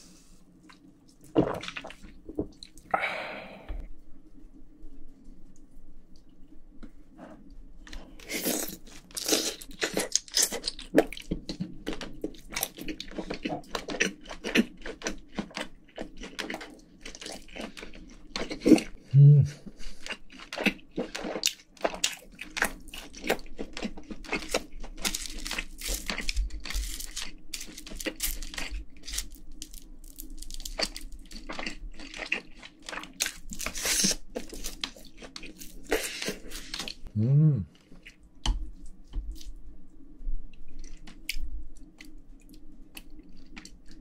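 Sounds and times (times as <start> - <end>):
wet chewing and smacking: 7.8 - 19.0, 19.7 - 37.1, 40.5 - 44.0
person humming: 19.1 - 19.6, 37.1 - 37.8.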